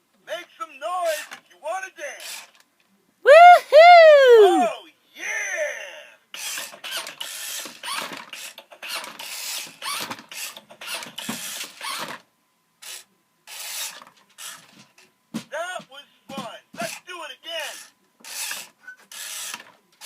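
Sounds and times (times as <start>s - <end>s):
toy truck mechanism clicking: 2.2s - 2.7s, 6.4s - 12.2s, 12.8s - 14.6s, 17.7s - 19.7s.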